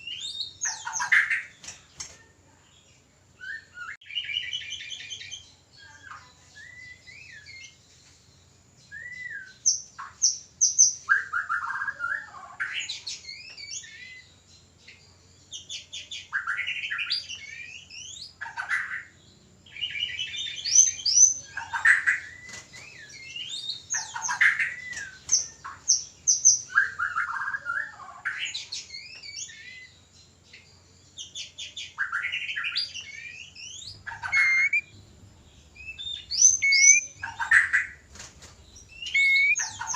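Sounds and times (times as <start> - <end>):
bird singing whistles and trills: 0.0 - 1.6, 3.4 - 7.8, 8.8 - 14.3, 19.7 - 30.0, 31.2 - 35.0, 35.6 - 38.0, 38.7 - 39.9.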